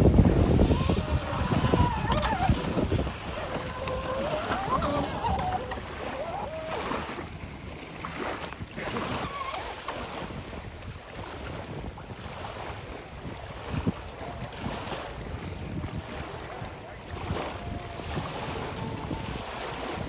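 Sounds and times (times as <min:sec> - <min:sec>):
waves on open water: 0:00.0 - 0:20.0
wind buffeting microphone: 0:00.0 - 0:20.0
distant electric motor whining: 0:00.1 - 0:06.8.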